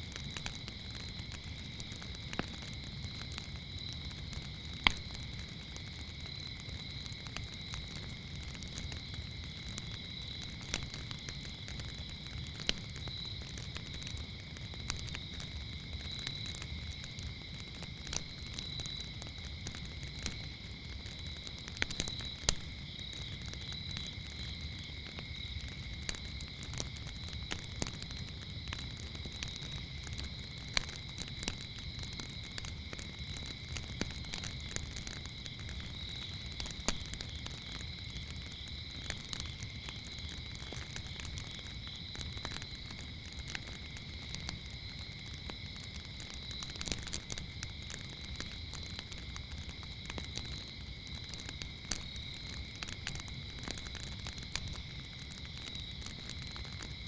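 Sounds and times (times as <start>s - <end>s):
crickets chirping: 0.0s - 57.0s
wood fire crackling and popping: 0.0s - 57.0s.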